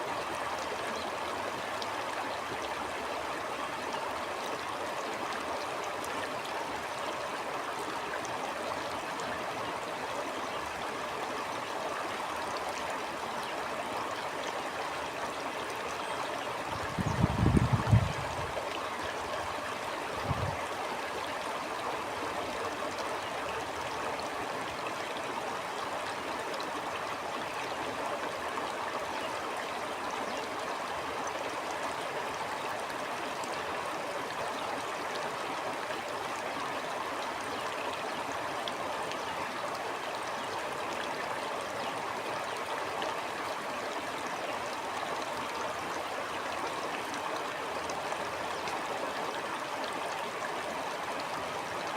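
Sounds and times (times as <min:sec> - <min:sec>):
stream water gurgling: 0:00.0 - 0:51.9.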